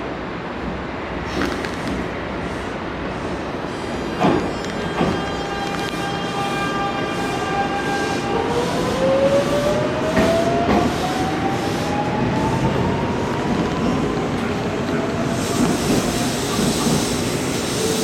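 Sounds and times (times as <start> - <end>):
train running rumble: 8.5 - 18.0.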